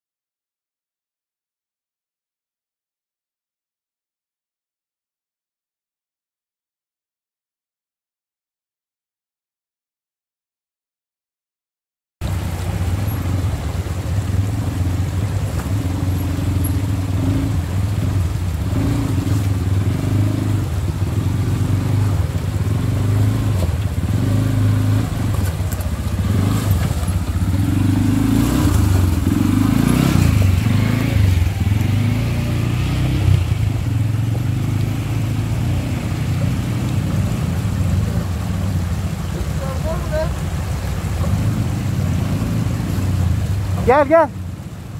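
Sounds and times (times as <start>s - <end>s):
atv engine revving: 12.2s - 44.9s.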